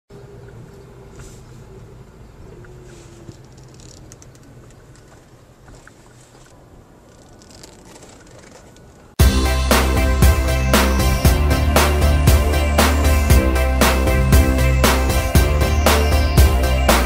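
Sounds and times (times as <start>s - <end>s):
handling clicks and rustles: 0.4s - 9.2s
car engine humming: 8.2s - 17.0s.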